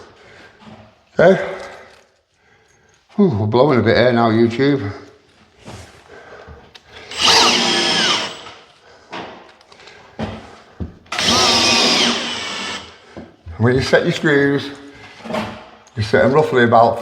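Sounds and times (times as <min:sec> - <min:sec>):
power drill driving screws: 0:07.0 - 0:08.6, 0:11.1 - 0:13.0.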